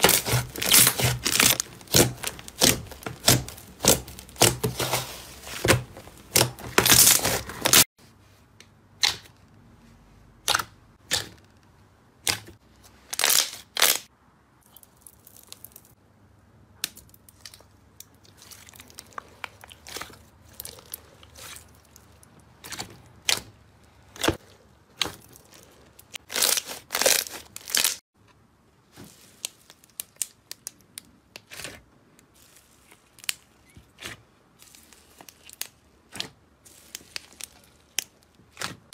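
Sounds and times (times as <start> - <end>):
slime crackling and popping: 0.0 - 7.9, 16.8 - 23.5, 24.1 - 28.0, 29.0 - 31.8, 32.4 - 38.9.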